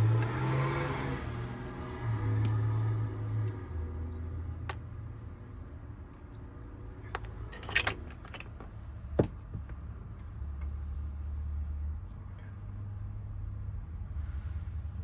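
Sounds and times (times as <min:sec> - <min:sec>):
metal lock parts clicking: 0:07.0 - 0:08.6.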